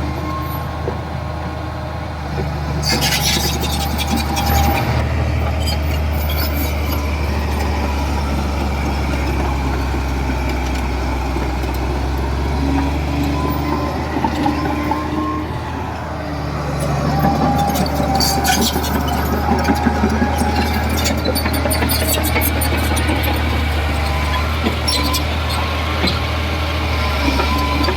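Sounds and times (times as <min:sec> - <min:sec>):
bulldozer diesel engine running: 0:00.0 - 0:27.9
short squeals: 0:02.8 - 0:08.4, 0:12.6 - 0:26.3.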